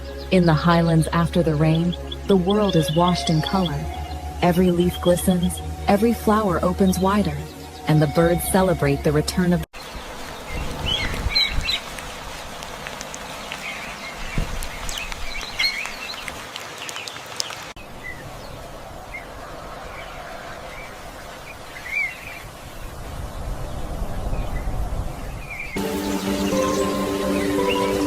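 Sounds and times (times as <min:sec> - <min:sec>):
birds chirping and calling: 0:00.0 - 0:08.8, 0:09.4 - 0:11.9, 0:25.5 - 0:28.0.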